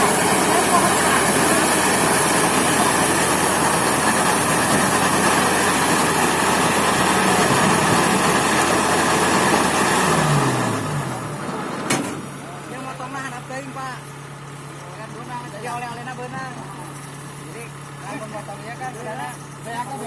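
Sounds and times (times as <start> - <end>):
combine harvester running: 0.0 - 20.0.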